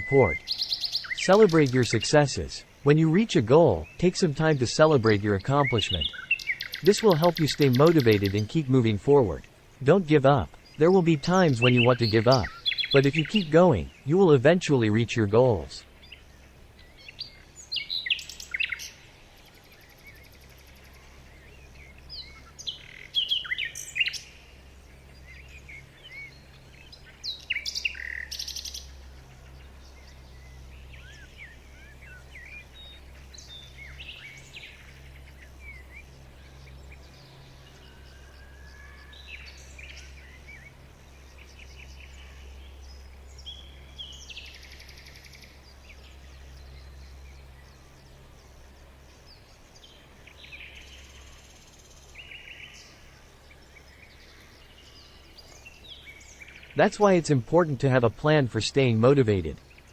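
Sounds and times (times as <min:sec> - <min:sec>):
birds chirping and singing: 0:00.0 - 0:59.9
low steady hum: 0:00.0 - 0:59.9.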